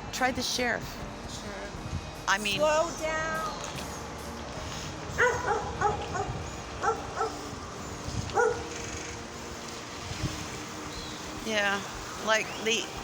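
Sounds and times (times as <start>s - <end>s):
dog barking: 5.2s - 7.5s, 8.3s - 8.8s.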